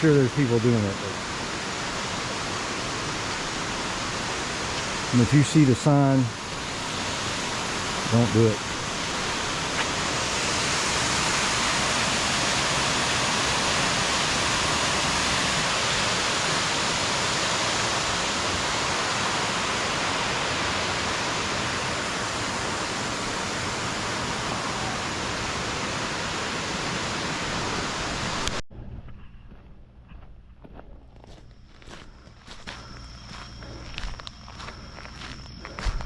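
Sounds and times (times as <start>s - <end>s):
waterfall rushing: 0.0s - 28.6s.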